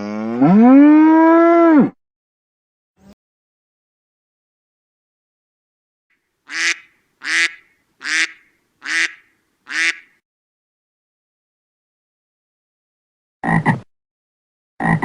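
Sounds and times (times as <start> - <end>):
duck quacking: 6.5 - 10.1.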